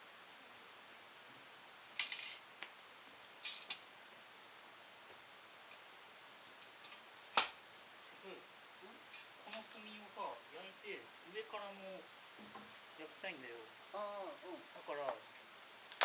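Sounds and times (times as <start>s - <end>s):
metallic clinks and clicks: 2.0s - 3.9s, 10.9s - 13.7s.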